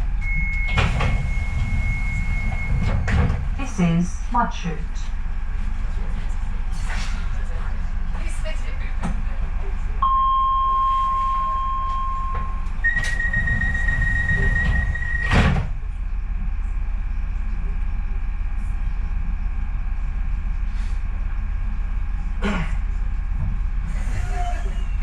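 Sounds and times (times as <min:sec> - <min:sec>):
train rumbling: 0:00.0 - 0:10.0, 0:11.8 - 0:25.0
sliding doors shutting: 0:00.2 - 0:03.6, 0:12.8 - 0:15.8
door warning tones: 0:00.2 - 0:03.9, 0:10.0 - 0:15.7.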